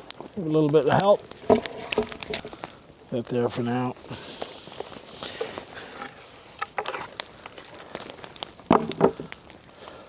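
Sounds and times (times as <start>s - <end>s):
boards clunking onto fire: 0.0s - 3.7s, 5.3s - 9.6s
burning wood popping and crackling: 0.0s - 10.0s.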